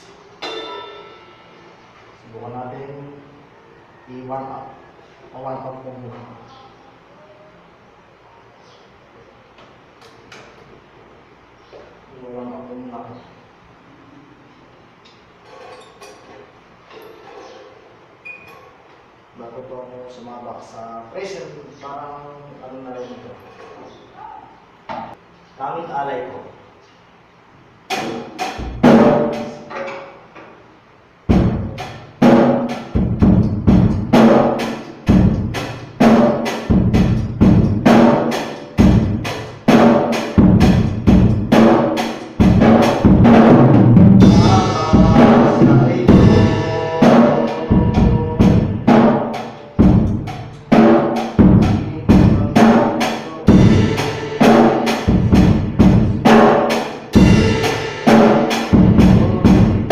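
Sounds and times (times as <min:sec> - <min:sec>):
drum strokes: 0:00.0 - 0:02.0, 0:27.9 - 0:29.9, 0:31.3 - 0:59.9
cymbal ringing: 0:00.1 - 0:01.9, 0:44.2 - 0:50.5, 0:53.3 - 0:56.2, 0:56.9 - 0:59.9.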